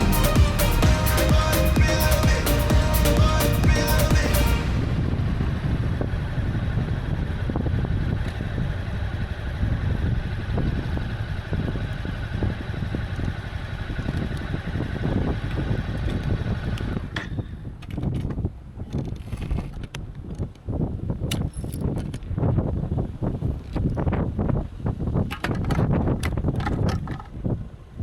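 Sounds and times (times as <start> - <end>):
background music: 0.0 - 5.1
motorcycle engine rumble: 0.0 - 18.8
wind and road noise: 0.0 - 28.0.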